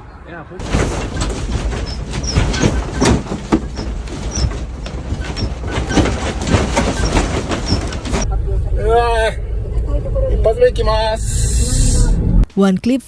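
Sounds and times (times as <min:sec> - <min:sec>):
faint high squeaks: 0:00.9 - 0:08.2.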